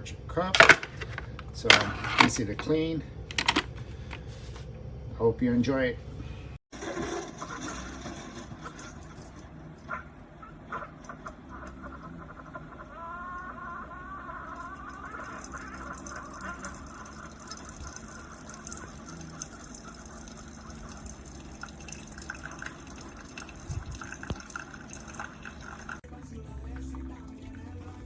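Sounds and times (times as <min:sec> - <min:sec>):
coffee pouring and dripping: 0:15.1 - 0:27.6.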